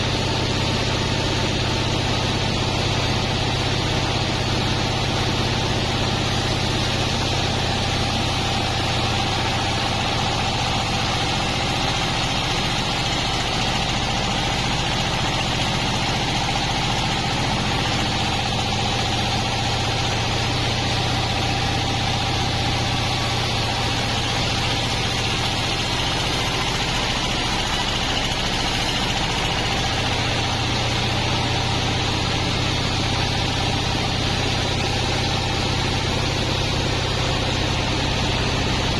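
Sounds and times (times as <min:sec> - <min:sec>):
band saw machinery humming: 0:00.0 - 0:38.9.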